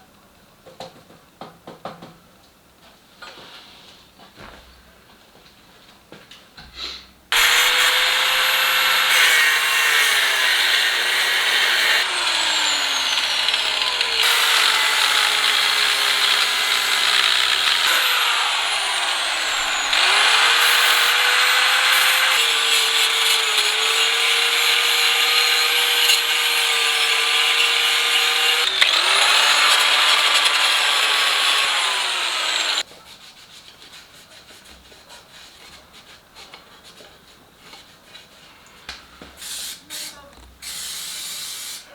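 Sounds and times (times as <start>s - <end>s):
angle grinder cutting metal: 7.3s - 32.8s, 40.6s - 41.9s.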